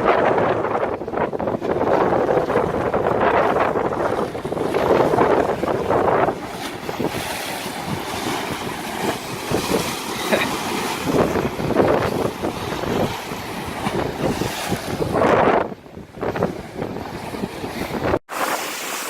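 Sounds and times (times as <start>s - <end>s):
wind buffeting microphone: 0.0s - 18.7s
open water washing: 0.0s - 19.0s.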